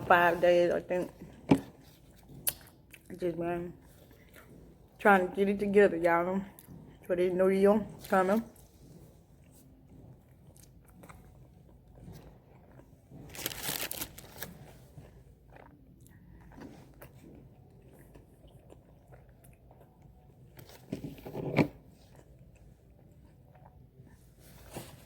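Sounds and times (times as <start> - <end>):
person chewing food: 1.1 - 3.1, 3.8 - 5.0, 8.5 - 24.4.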